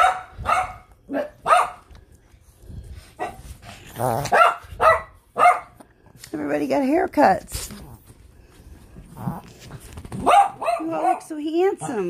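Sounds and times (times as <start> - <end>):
small dog barking: 0.0 - 1.8, 4.2 - 5.8, 10.2 - 12.0.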